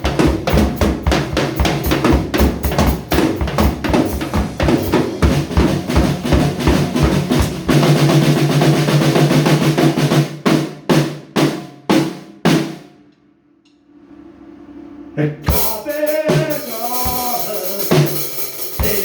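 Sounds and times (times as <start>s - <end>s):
rock band music: 0.0s - 8.6s, 15.5s - 19.0s
drum roll: 0.0s - 13.0s, 15.4s - 19.0s.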